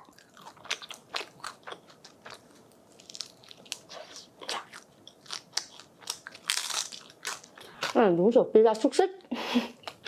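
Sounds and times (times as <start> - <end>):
chewing crisp rice paper: 0.0 - 8.0.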